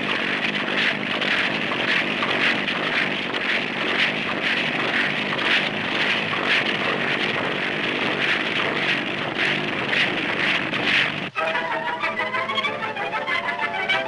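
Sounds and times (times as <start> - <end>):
engine droning rhythmically: 0.0 - 14.0.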